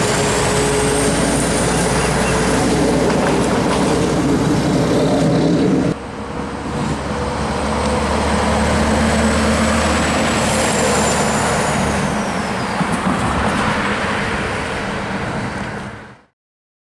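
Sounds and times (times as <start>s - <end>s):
heavy truck driving by: 0.0s - 16.2s.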